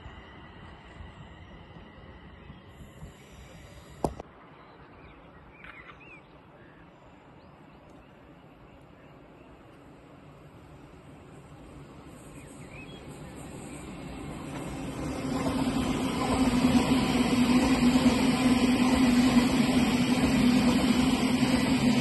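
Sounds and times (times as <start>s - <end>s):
train running past: 0.0s - 4.2s, 9.2s - 22.0s
wheels hissing: 11.3s - 22.0s.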